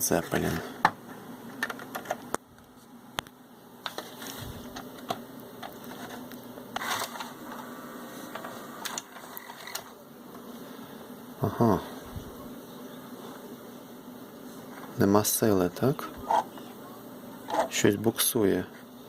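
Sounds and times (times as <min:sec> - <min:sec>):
steady hum: 0:00.0 - 0:19.0
mechanism clicks and clunks: 0:01.5 - 0:02.4, 0:08.3 - 0:09.9.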